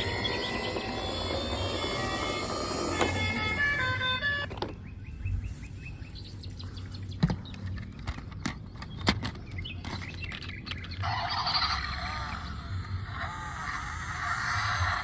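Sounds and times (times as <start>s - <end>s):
rising electronic chirps: 0.0s - 4.5s
electronic toy beeping tune: 0.0s - 4.6s.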